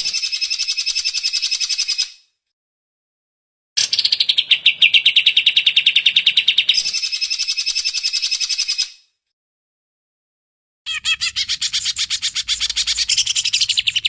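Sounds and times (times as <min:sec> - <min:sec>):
bird chattering song: 0:10.9 - 0:14.0.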